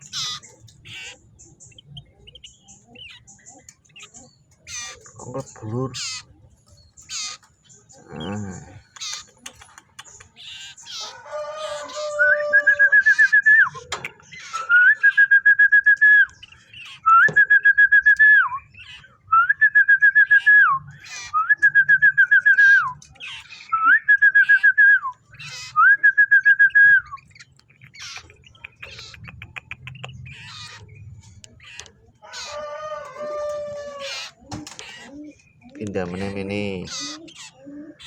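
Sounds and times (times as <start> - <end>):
bird singing trilled whistles: 12.2 - 23.0, 23.6 - 27.5.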